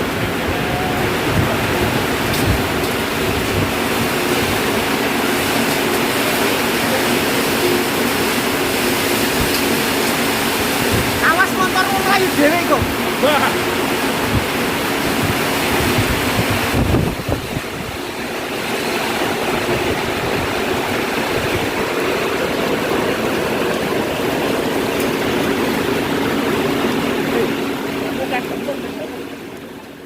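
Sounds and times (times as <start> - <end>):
wind gusts on microphone: 0.0 - 5.0, 9.3 - 22.5
heavy rain and hail: 0.0 - 30.0.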